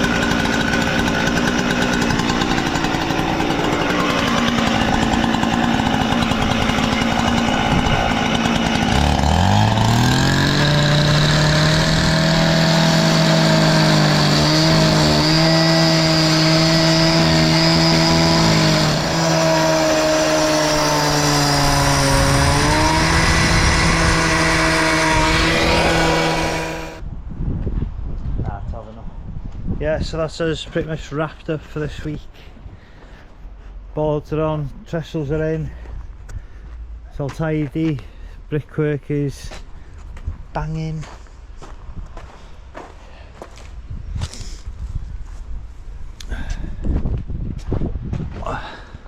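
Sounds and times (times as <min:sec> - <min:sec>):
small engine revving: 0:00.0 - 0:27.0.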